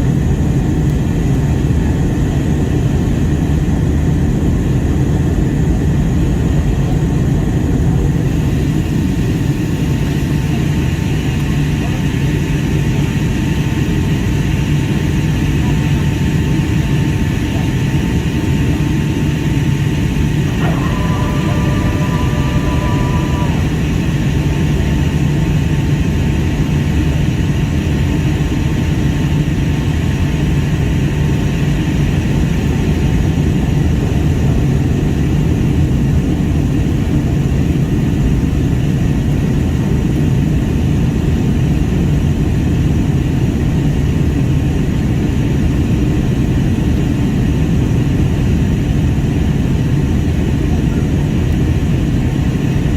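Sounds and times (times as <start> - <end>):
airliner cabin engine rumble: 0.0 - 52.9
steady tone: 20.2 - 25.6.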